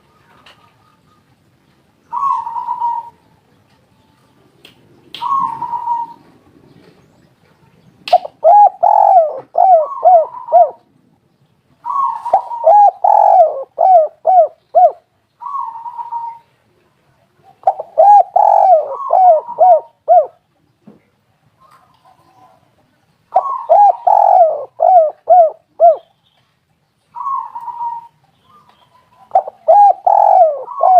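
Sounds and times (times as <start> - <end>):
dove cooing: 2.1 - 3.2, 5.2 - 6.9, 8.1 - 10.9, 11.8 - 16.5, 17.5 - 20.4, 23.3 - 26.1, 27.2 - 28.2, 28.8 - 30.9.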